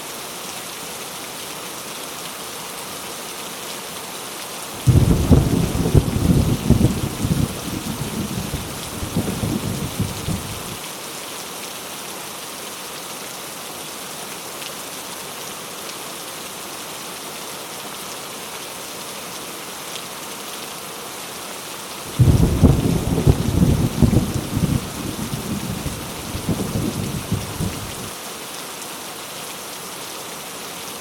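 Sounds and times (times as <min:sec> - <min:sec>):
heavy rain hissing: 0:04.6 - 0:11.5, 0:21.3 - 0:31.0
thunder rumbling: 0:04.8 - 0:10.8, 0:22.1 - 0:28.1.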